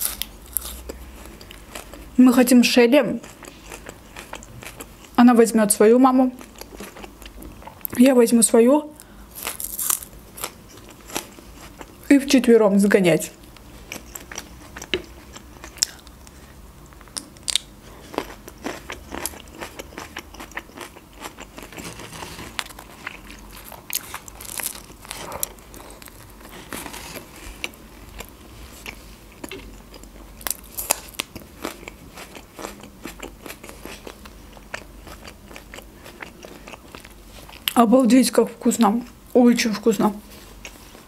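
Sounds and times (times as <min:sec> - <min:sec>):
biting and chewing crusty bread: 0:09.3 - 0:12.1, 0:13.5 - 0:16.4, 0:17.0 - 0:37.8.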